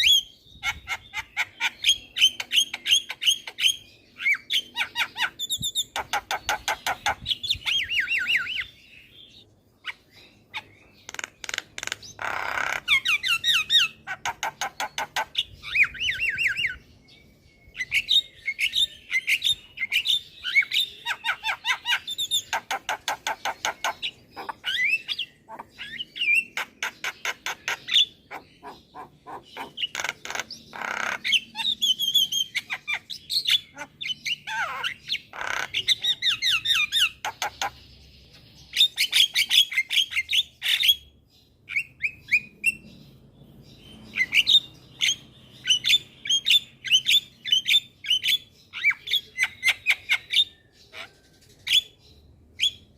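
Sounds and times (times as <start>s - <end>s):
myna calling and singing: 17.8s - 41.0s.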